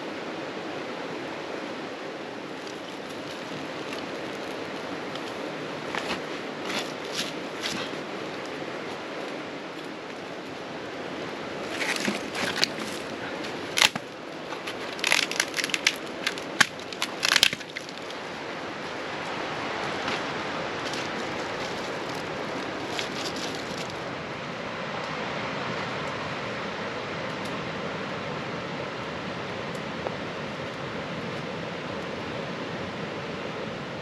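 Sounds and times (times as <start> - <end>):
water rushing: 0.0 - 34.0
sharp crackles and clicks: 13.8 - 18.2.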